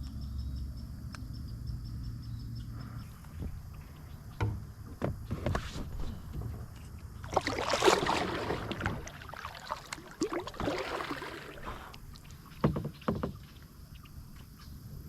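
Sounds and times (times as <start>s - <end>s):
light knocks: 4.3s - 5.6s, 12.5s - 13.5s
paddle strokes through water: 4.9s - 14.4s.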